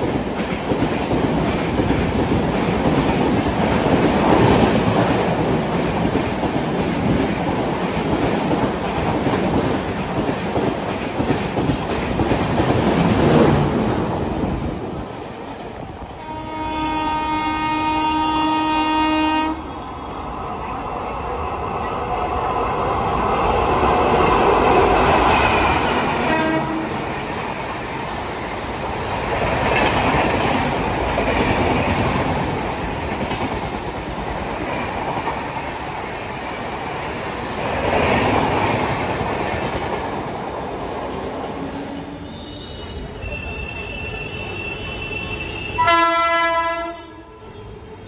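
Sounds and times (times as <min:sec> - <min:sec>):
train rumble and clickety-clack: 0:00.0 - 0:48.0
locomotive horn: 0:16.2 - 0:19.7, 0:26.2 - 0:27.1, 0:44.6 - 0:47.6.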